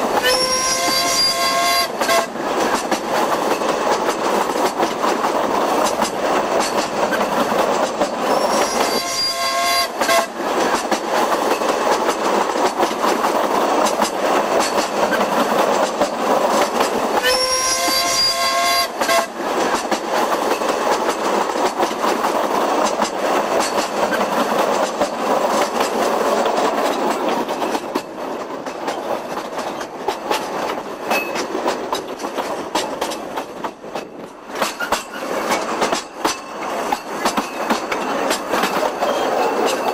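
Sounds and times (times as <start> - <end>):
train wheels rattling: 0.0 - 39.9
train whistle blast: 0.2 - 2.3, 8.3 - 10.3, 17.2 - 19.3.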